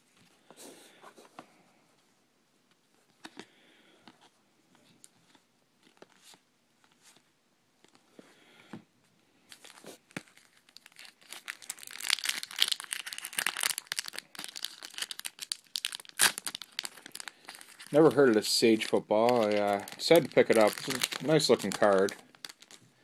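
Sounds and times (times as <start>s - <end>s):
card pack wrapper tearing and crinkling: 9.5s - 22.8s.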